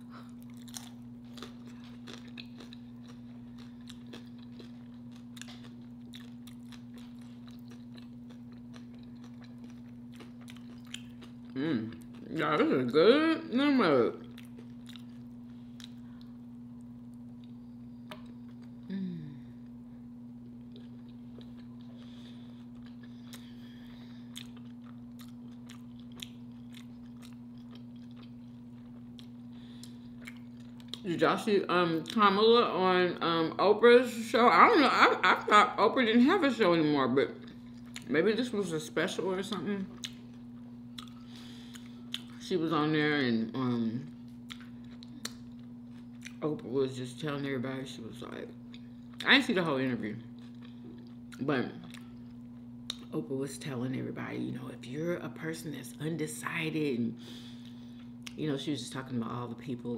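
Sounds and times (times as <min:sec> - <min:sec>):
low hum: 0:00.0 - 0:59.6
crisp chewing crunches: 0:00.2 - 0:12.2, 0:24.3 - 0:31.1.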